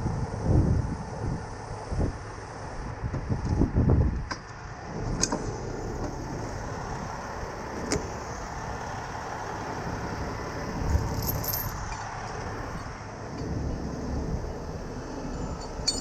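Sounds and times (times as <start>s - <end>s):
vehicle engine running: 4.6s - 16.0s.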